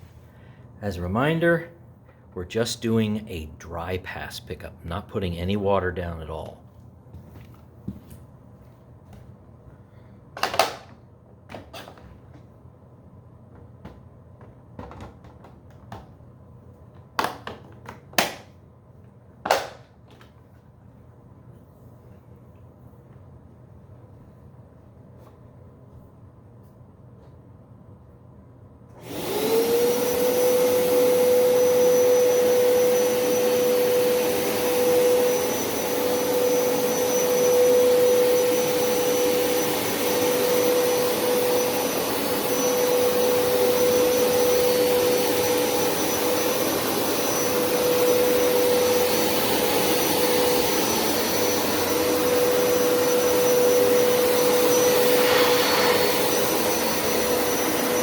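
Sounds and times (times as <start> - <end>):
carpet cleaner motor whining: 29.0 - 58.0.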